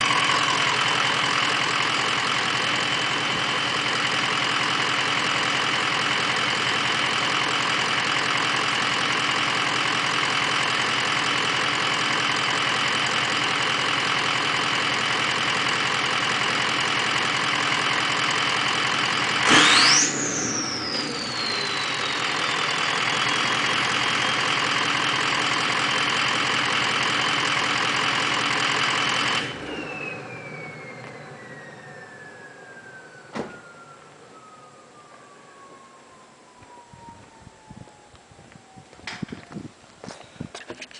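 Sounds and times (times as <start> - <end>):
diesel engine idling: 0.0 - 36.8
engine revving: 14.5 - 33.6
high turbo whistle: 19.2 - 25.0, 29.2 - 39.1.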